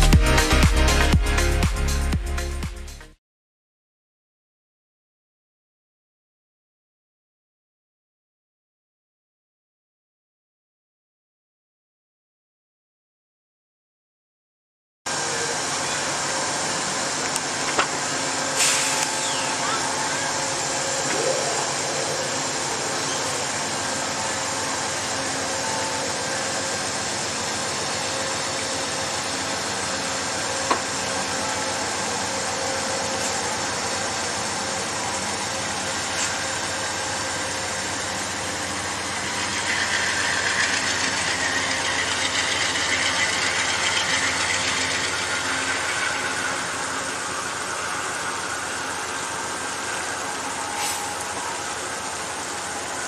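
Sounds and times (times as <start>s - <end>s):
diesel locomotive engine running: 15.1s - 53.0s
rushing of moving train: 15.1s - 53.0s.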